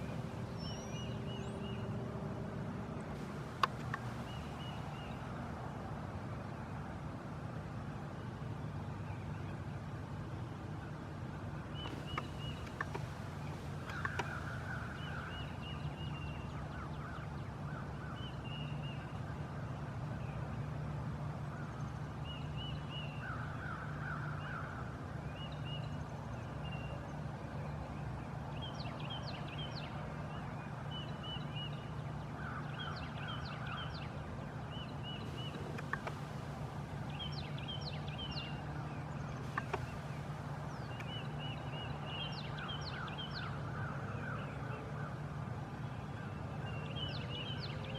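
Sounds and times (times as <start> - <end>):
birds chirping and rasping calls: 3.2 - 5.4, 11.8 - 16.4, 34.7 - 44.2.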